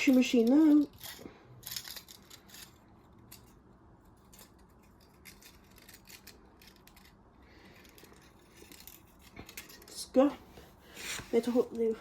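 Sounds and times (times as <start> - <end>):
small objects clicking: 0.0 - 3.6, 4.2 - 10.0.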